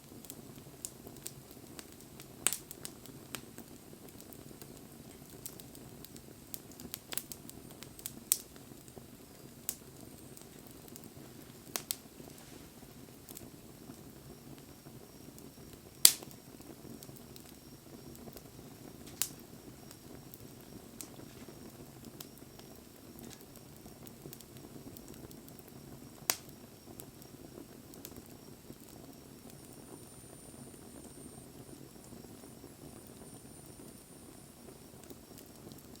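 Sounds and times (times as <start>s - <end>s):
burning wood popping and crackling: 0.0s - 36.0s
wood fire burning: 0.0s - 36.0s.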